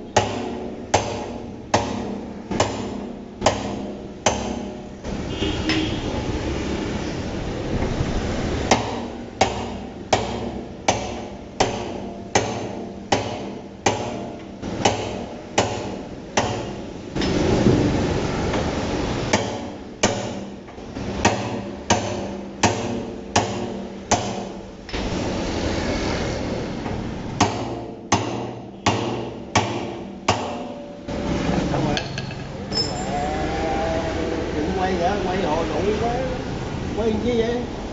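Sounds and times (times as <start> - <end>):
steady noise: 14.6 - 20.0
hammer striking steel drum: 27.4 - 31.1.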